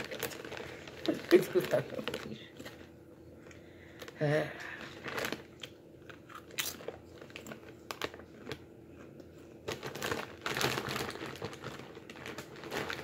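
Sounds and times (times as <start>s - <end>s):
plastic chip bag crackling: 0.0s - 3.0s, 3.8s - 13.0s
chip crunching and chewing: 3.4s - 13.0s.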